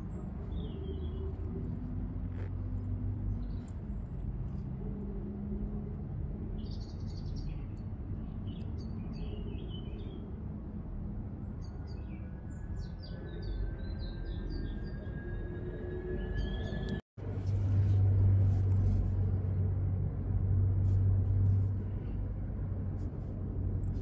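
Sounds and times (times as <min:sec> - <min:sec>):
small birds chirping: 0:00.0 - 0:04.8, 0:06.4 - 0:10.4
low background rumble: 0:00.0 - 0:24.0.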